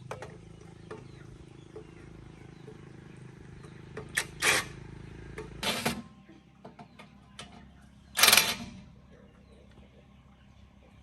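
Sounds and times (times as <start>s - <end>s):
low steady hum: 0.0s - 11.0s
loud rasping bursts: 4.2s - 4.8s.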